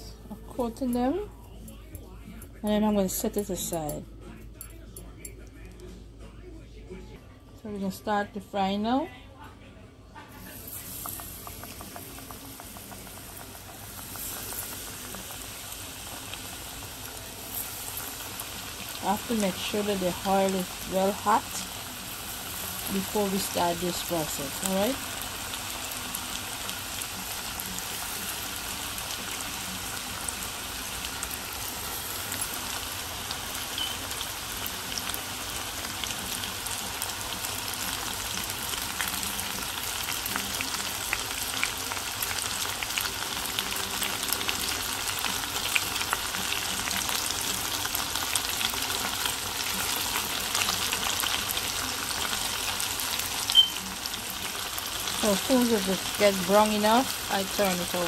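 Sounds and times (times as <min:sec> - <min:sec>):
chicken deep-frying in oil: 0:10.4 - 0:58.0.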